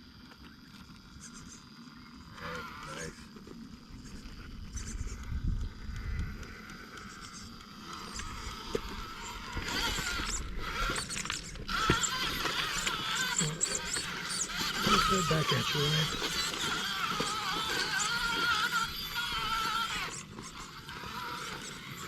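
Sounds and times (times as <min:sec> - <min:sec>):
electric motor and gears whining: 0:00.0 - 0:22.0
wind rumbling on microphone: 0:03.8 - 0:12.5
sharp clicks: 0:04.9 - 0:20.7.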